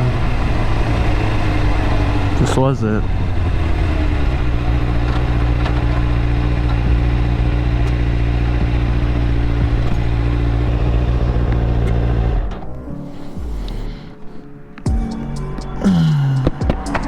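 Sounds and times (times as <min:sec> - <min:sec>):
motorcycle engine running steadily: 0:00.0 - 0:12.8.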